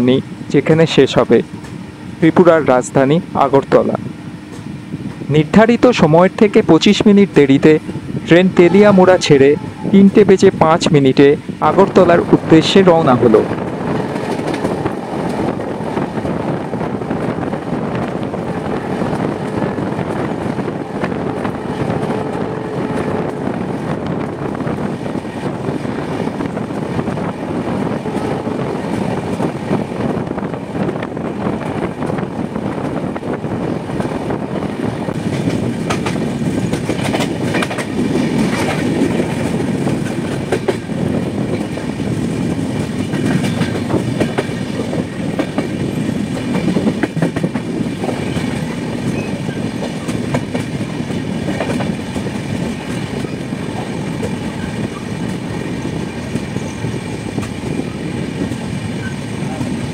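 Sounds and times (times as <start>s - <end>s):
train wheels rumbling on rails: 0.0s - 59.9s
clickety-clack over rail joints: 0.8s - 1.8s, 3.6s - 59.9s.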